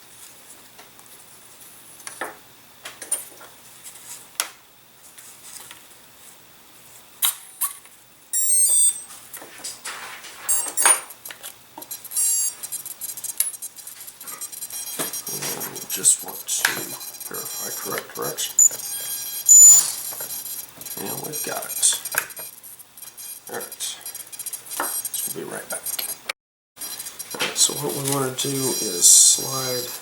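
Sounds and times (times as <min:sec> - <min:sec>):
high electronic beep tones: 0:08.4 - 0:09.1, 0:10.5 - 0:10.9, 0:12.1 - 0:26.2, 0:26.8 - 0:30.0.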